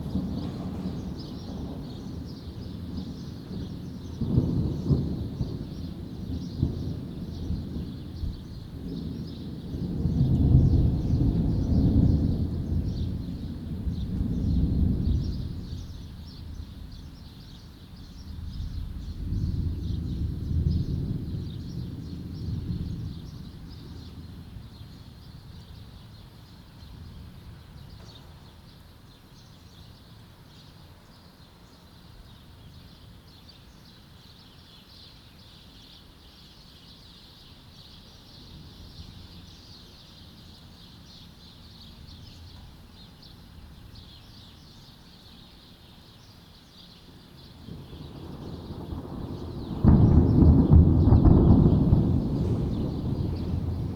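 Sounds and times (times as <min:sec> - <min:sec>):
thunder rumbling: 0:00.0 - 0:16.8, 0:18.4 - 0:25.0, 0:47.6 - 0:53.9
small birds chirping: 0:00.0 - 0:53.9.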